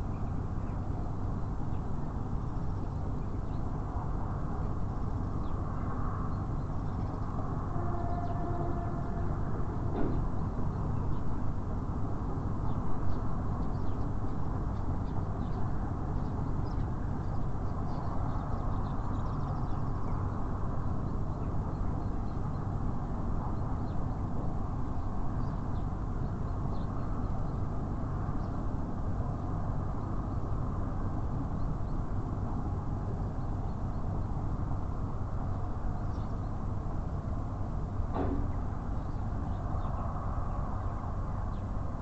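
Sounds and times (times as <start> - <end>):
city traffic rumble: 0.0 - 42.0
small birds chirping: 12.6 - 22.7.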